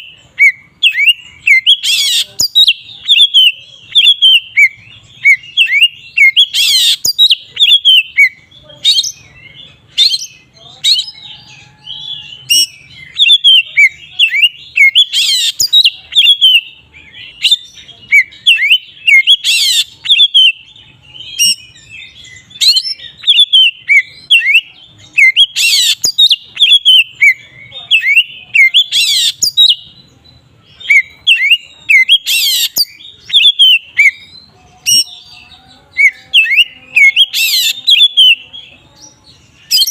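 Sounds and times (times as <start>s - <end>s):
bird chirping and whistling: 0.0s - 30.0s, 30.8s - 35.3s, 36.0s - 38.6s, 39.6s - 39.9s
harsh rasping bird call: 30.8s - 38.4s.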